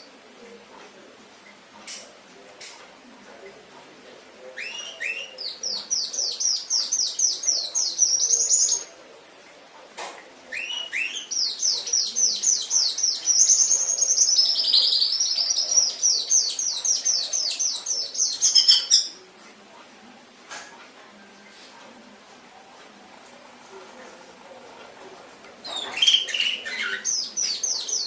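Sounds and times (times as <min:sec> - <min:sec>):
canary singing: 0:04.4 - 0:09.0, 0:10.5 - 0:19.3, 0:25.6 - 0:28.0.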